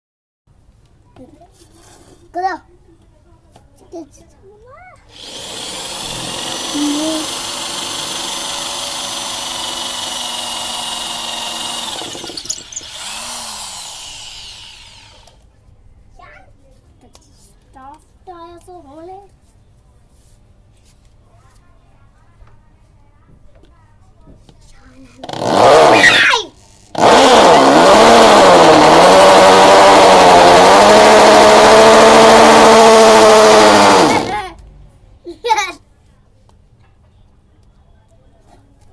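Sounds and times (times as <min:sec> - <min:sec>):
drill clicks: 0:05.1 - 0:15.4, 0:31.5 - 0:34.4
electric drill motor whine: 0:05.1 - 0:15.4, 0:27.0 - 0:34.4.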